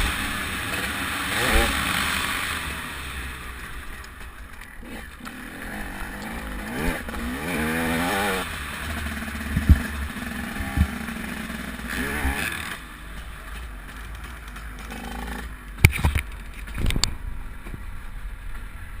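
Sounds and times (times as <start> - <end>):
motocross bike engine running: 0.0 - 19.0
sharp knocks and clatter: 12.3 - 17.8.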